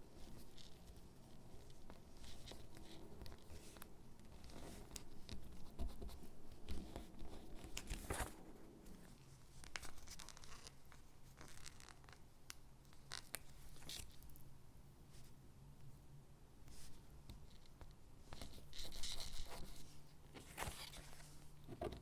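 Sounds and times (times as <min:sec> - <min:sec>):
paper rustling: 0:06.8 - 0:12.2, 0:20.4 - 0:22.0.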